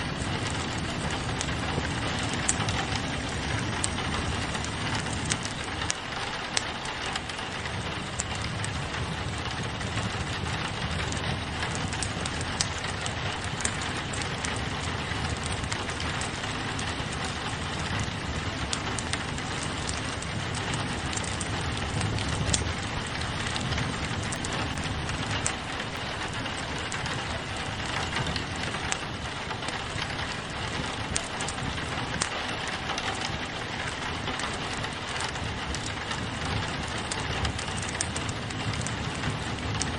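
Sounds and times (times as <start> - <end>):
rain pattering on a window: 0.0 - 39.9
wood fire crackling: 0.0 - 39.9.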